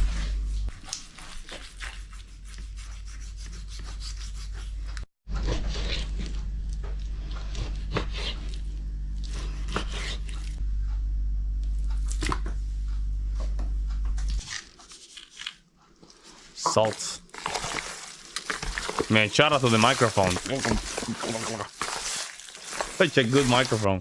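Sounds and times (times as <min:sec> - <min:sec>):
steady low hum: 0:00.0 - 0:00.7, 0:04.4 - 0:14.4.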